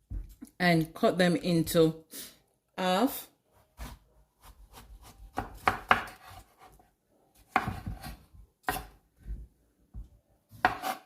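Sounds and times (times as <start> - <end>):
knife slicing zucchini: 3.6 - 6.8, 7.4 - 9.0, 10.5 - 11.0.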